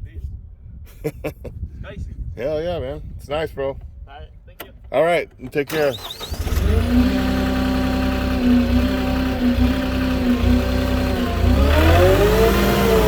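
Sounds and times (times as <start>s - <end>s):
truck engine idling and revving: 5.7s - 13.0s.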